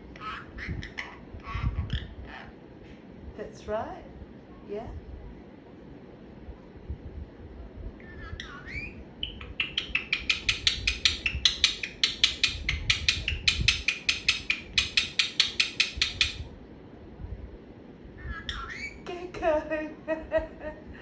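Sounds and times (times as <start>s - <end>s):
parrot calling: 0.0s - 2.6s, 8.0s - 16.5s, 18.2s - 19.1s
parrot high chirps: 0.1s - 2.6s, 8.0s - 16.5s, 18.2s - 19.1s.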